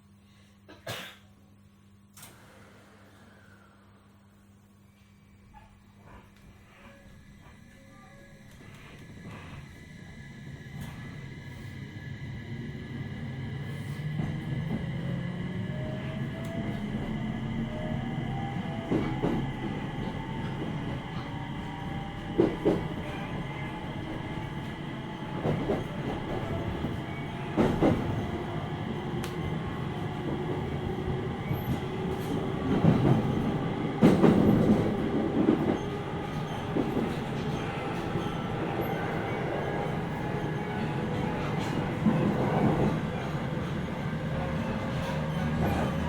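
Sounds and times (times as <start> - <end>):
train rumble: 5.4 - 46.0
electric train motor whine: 6.7 - 42.2.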